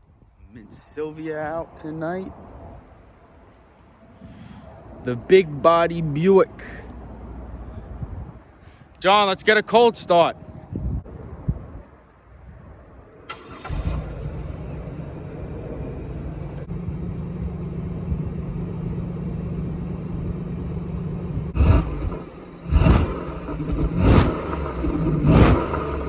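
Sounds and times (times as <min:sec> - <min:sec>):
car engine starting and revving: 0:13.2 - 0:26.0.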